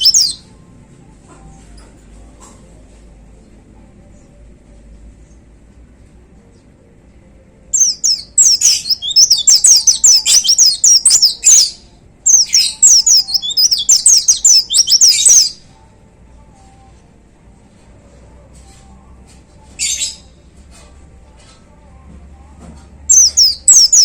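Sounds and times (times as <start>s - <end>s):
bird twittering song: 0.0s - 0.4s, 7.8s - 15.6s, 23.0s - 24.0s.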